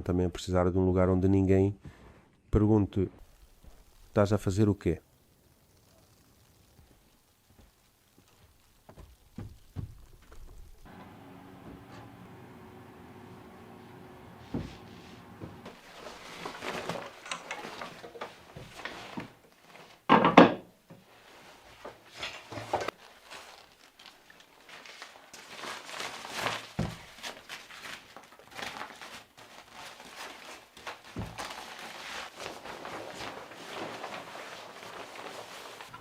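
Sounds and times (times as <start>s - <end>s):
objects knocking and rustling: 8.8s - 10.8s, 14.5s - 21.1s.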